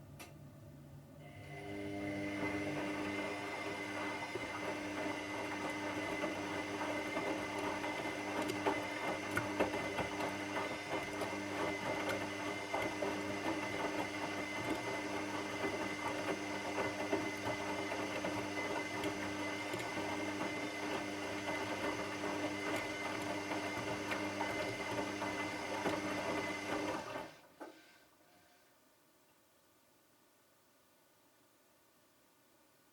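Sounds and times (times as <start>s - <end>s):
washing machine running: 1.2s - 27.4s.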